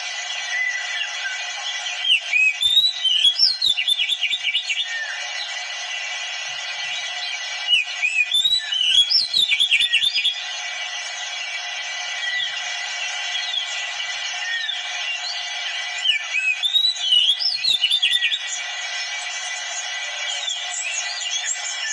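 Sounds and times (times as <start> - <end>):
bird whistling and chirping: 0.5 - 5.5, 6.9 - 10.4, 12.2 - 12.6, 14.4 - 18.6, 20.3 - 21.9.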